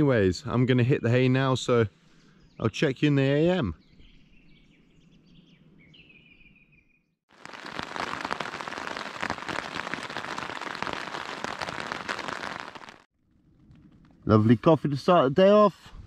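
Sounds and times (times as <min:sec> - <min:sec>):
faint birdsong: 0:00.4 - 0:07.2
rain falling on a tent: 0:07.3 - 0:13.1.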